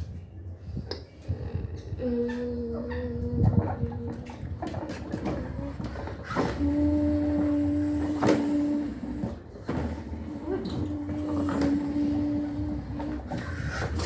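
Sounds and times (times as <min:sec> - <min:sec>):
washing machine motor humming: 0:03.1 - 0:14.0.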